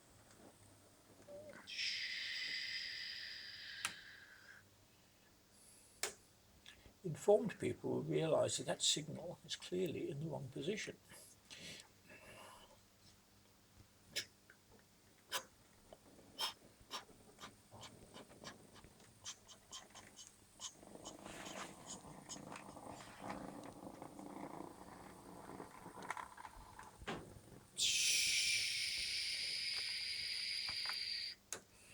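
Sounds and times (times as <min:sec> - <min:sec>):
loud hiss with high tones: 0:27.8 - 0:31.4.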